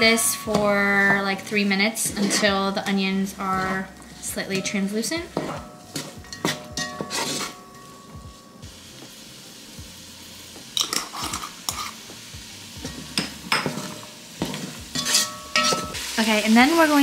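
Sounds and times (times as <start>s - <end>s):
vegetables sizzling in butter: 0.0s - 17.0s
wooden spoon scraping a pan: 1.9s - 7.7s, 12.8s - 16.2s.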